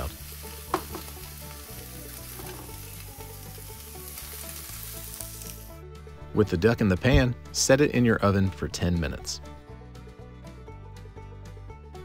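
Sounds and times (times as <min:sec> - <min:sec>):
fat sizzling in skillet: 0:00.0 - 0:05.8.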